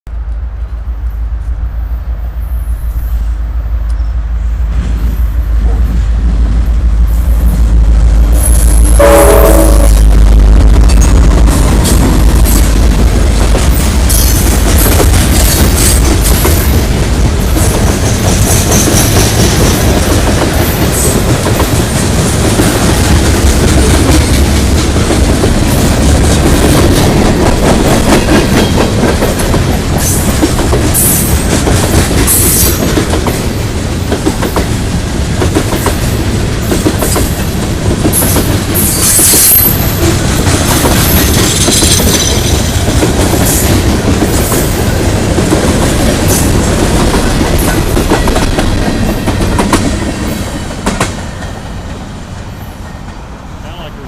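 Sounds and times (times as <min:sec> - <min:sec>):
train rumble: 0:00.1 - 0:54.0
train wheels clicking over rail joints: 0:10.8 - 0:51.6.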